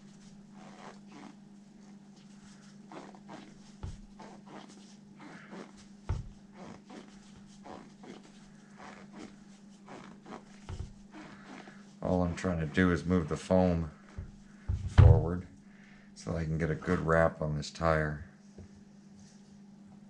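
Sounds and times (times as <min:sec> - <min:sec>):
rubber tire rubbing and squeaking: 0:00.0 - 0:01.4, 0:02.5 - 0:15.4
low steady hum: 0:00.0 - 0:20.0
soft knocks: 0:14.2 - 0:15.4.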